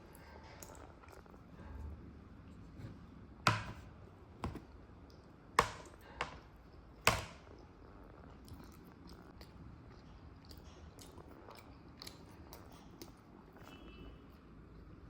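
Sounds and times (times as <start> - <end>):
tableware knocking on hard surface: 3.5 - 3.8.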